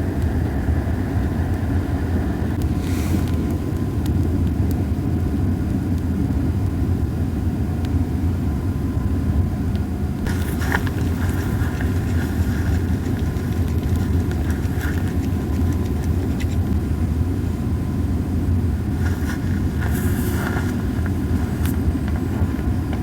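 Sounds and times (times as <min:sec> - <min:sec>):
campfire rumbling and crackling: 0:00.0 - 0:23.0
fire hissing flare-ups: 0:00.2 - 0:04.7, 0:10.2 - 0:17.6, 0:18.4 - 0:23.0.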